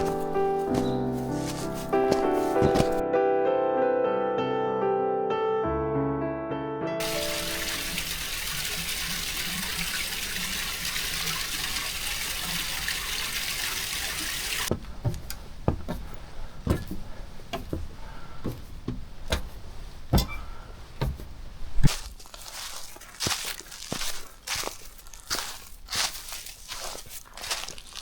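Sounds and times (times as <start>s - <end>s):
footsteps on a trail: 0.0s - 3.0s, 14.6s - 28.0s
rushing water: 7.0s - 14.8s.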